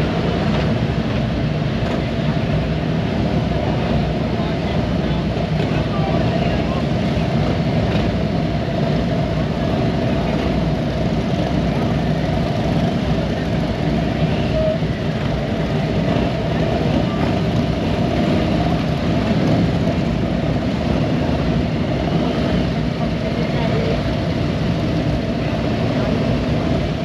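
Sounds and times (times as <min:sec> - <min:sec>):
motorcycle engines running: 0:00.0 - 0:27.0
voices in background: 0:03.5 - 0:19.0, 0:21.9 - 0:27.0.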